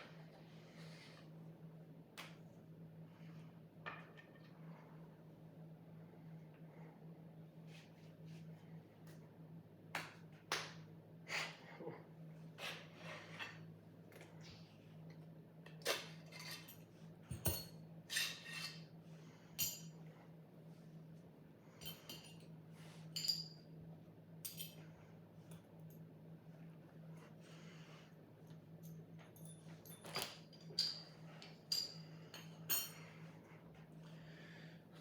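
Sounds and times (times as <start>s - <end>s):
steady low hum: 0.0s - 35.0s
sword blade scraping and clinking: 16.0s - 16.9s, 17.6s - 19.0s.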